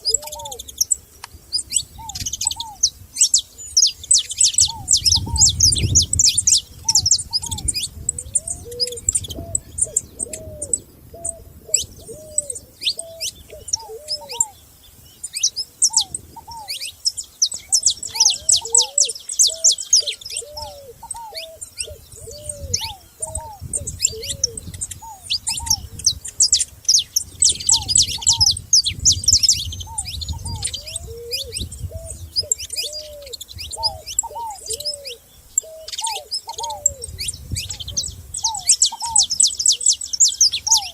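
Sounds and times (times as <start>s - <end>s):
bird cooing: 0.0s - 14.6s, 15.4s - 40.9s
songbirds chirping and trilling: 0.0s - 40.9s.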